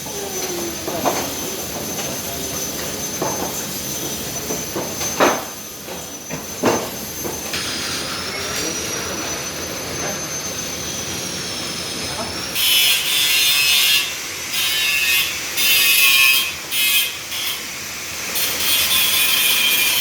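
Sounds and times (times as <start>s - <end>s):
high steady whine: 0.0s - 12.6s
laminating machine whirring: 0.0s - 20.0s.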